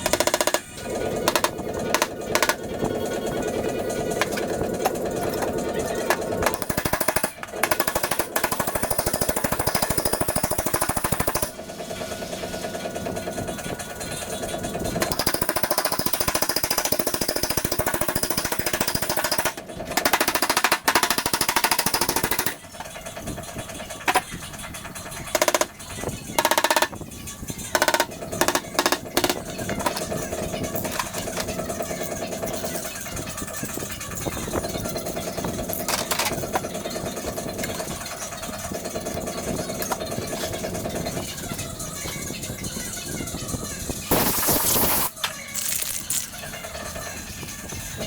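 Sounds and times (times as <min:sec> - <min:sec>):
power tool rattling on sheet metal: 0:00.0 - 0:11.6.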